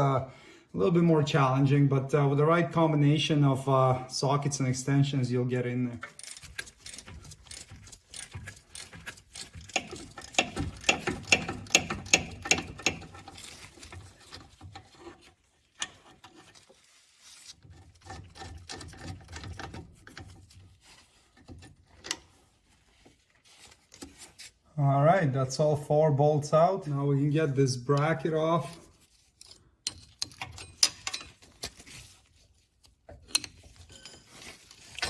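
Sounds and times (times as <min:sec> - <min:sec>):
hand ratchet clicking: 0:06.0 - 0:13.4.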